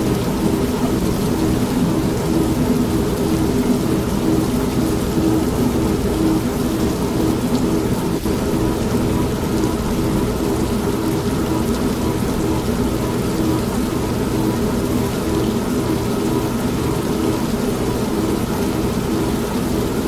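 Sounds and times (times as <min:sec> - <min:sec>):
rain falling: 0:00.0 - 0:20.0
washing machine motor hum: 0:00.0 - 0:20.0.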